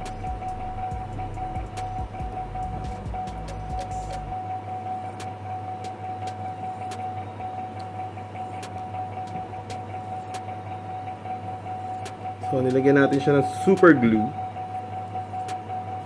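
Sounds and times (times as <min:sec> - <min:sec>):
background hum: 0:00.0 - 0:12.5
high-pitched whine: 0:00.0 - 0:16.0.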